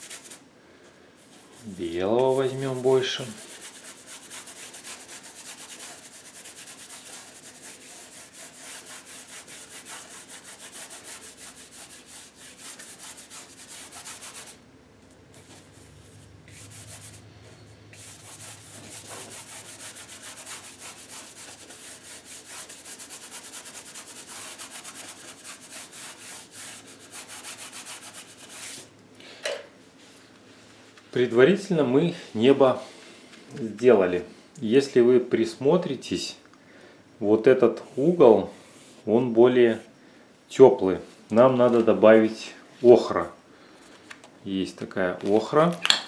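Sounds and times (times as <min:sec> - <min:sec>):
paintbrush scrubbing on canvas: 0:00.0 - 0:00.4, 0:01.4 - 0:14.6, 0:15.4 - 0:17.3, 0:17.9 - 0:28.9.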